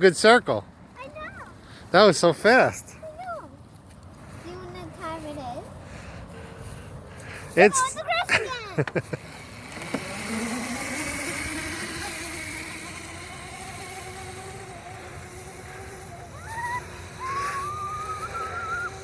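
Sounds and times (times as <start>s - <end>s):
electric motor whining: 8.8s - 19.0s
high whining calls: 9.0s - 19.0s.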